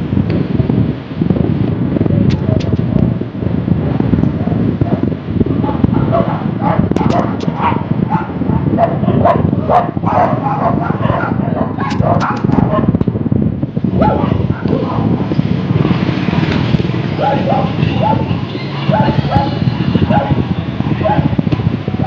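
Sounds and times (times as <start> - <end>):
steady low rumble: 0.0 - 22.0
dog barking: 4.3 - 13.0, 14.0 - 15.3, 17.2 - 21.4.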